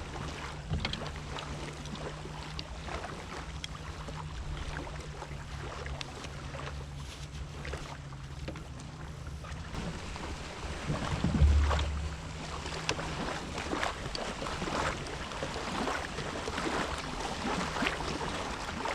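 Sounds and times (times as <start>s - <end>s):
water splashing and lapping: 0.0s - 18.9s
jet ski engine idling: 8.5s - 18.2s
low thump: 10.7s - 13.4s.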